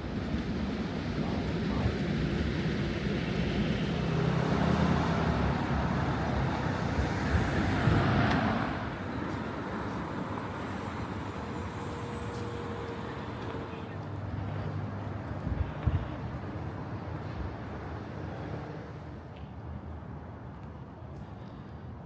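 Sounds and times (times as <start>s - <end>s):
vehicle passing close by: 4.0s - 9.2s.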